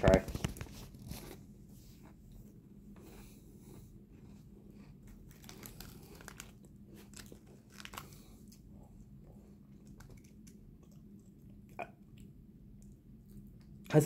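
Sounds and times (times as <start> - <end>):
person crunching a snack: 3.7 - 8.7, 9.6 - 12.3
plastic wrapper crackling: 5.1 - 8.6.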